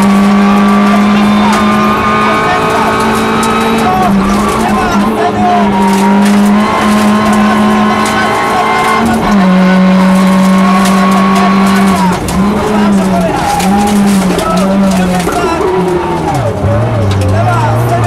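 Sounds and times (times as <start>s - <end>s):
rally car engine at high revs: 0.0s - 18.0s.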